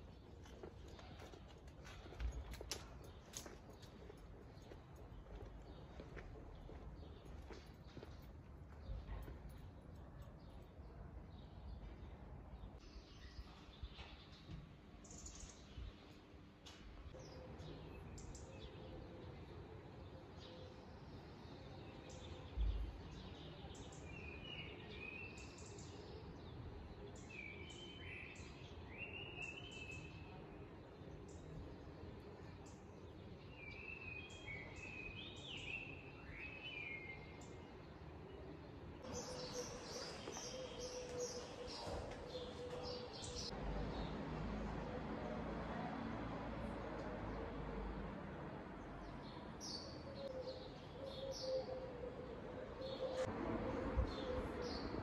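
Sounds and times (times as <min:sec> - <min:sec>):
small birds chirping: 0:17.2 - 0:44.2.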